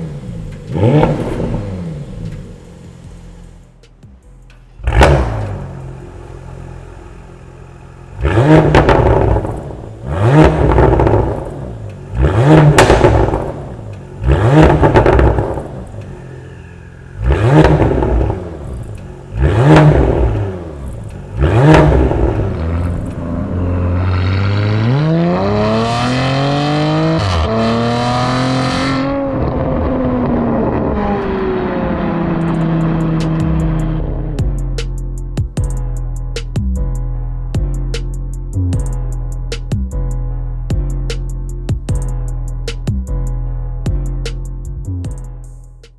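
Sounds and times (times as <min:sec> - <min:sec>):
car engine revving: 0:00.0 - 0:35.6.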